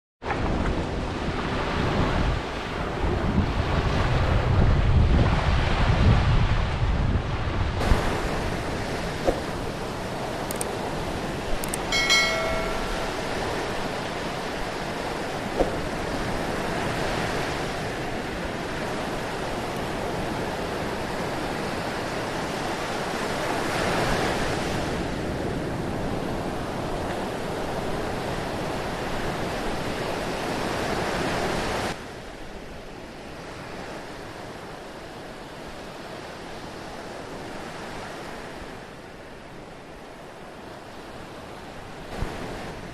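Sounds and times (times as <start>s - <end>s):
wind rumbling on microphone: 0.2s - 32.6s
sea waves surf: 0.3s - 42.9s.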